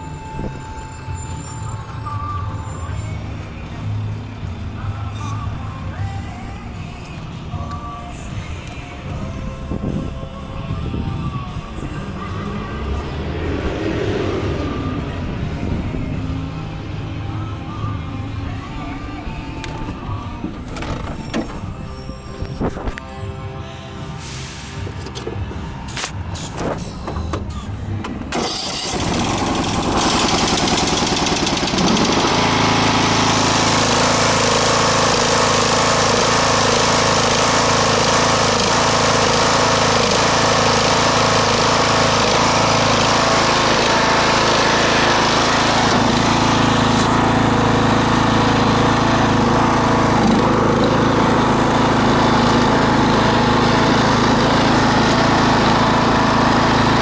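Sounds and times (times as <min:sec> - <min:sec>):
lawn tractor engine starting: 0:11.8 - 0:23.1, 0:24.2 - 0:57.0.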